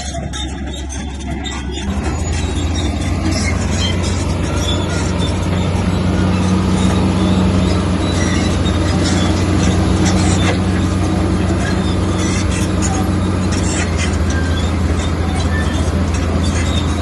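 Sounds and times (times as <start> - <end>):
bulldozer diesel engine running: 0.0 - 17.0
metallic squeaks and clanks: 0.0 - 17.0.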